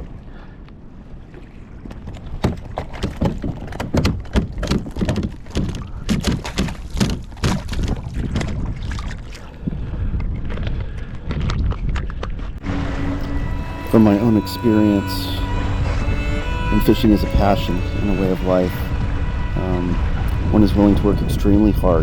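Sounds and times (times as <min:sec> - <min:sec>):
water splashing against kayak: 0:00.0 - 0:15.1
wind rumbling on microphone: 0:00.0 - 0:22.0
sharp splashes and knocks: 0:01.3 - 0:09.5.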